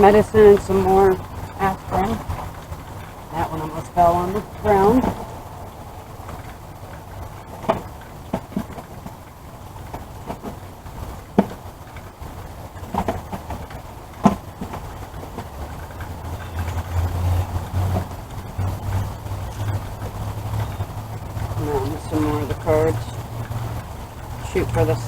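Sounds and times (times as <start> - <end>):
low rumble: 0.0 - 7.5
low engine hum: 0.0 - 25.0.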